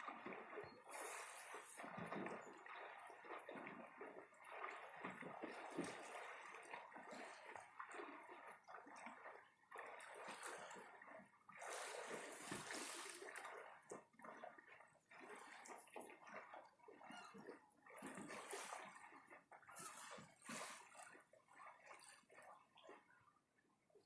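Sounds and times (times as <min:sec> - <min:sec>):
faint waves lapping on shore: 0:00.0 - 0:14.0.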